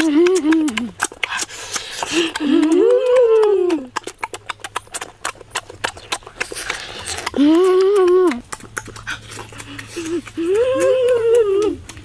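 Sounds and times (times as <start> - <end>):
boy humming mmm: 0.0 - 1.1, 2.0 - 4.0, 6.5 - 12.0
chewing with lip smacking: 0.0 - 12.0.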